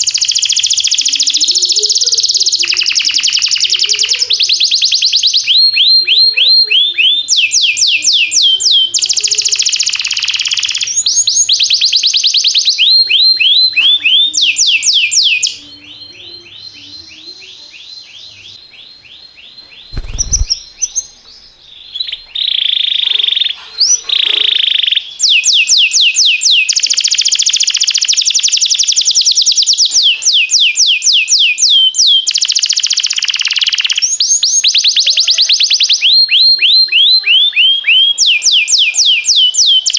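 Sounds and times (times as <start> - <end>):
canary singing: 0.0 - 27.2, 33.2 - 39.9.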